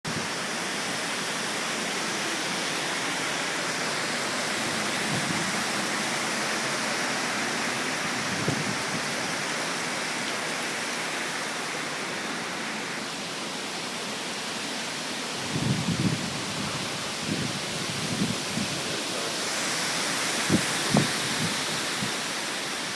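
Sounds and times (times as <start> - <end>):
wind gusts buffeting microphone: 4.1 - 6.6, 7.9 - 9.5, 15.3 - 22.4
strong wind rushing: 4.6 - 5.8, 8.1 - 9.2, 15.4 - 22.2.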